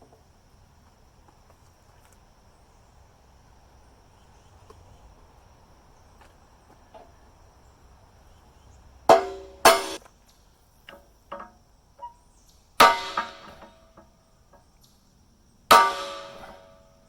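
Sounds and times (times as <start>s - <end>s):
hammer striking steel: 9.1s - 10.0s, 12.8s - 13.8s, 15.7s - 16.9s.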